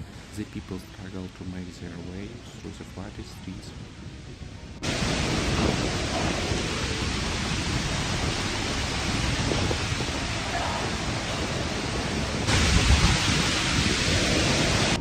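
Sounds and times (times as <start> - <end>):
hurricane wind: 0.0 - 15.0
low rumbling: 0.0 - 15.0
heavy rain: 4.1 - 15.0.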